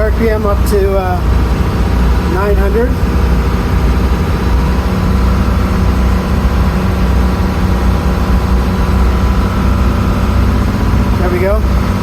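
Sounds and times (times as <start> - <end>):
marine diesel engine running: 0.0 - 12.0.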